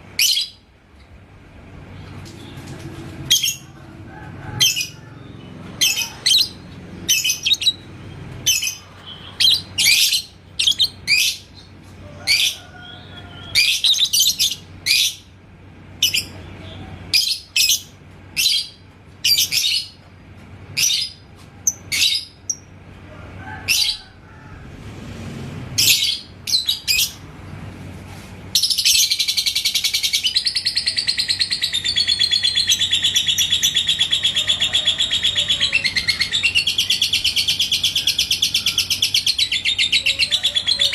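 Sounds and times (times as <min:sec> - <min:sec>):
lovebird chirping: 0:05.8 - 0:11.7, 0:12.4 - 0:15.2.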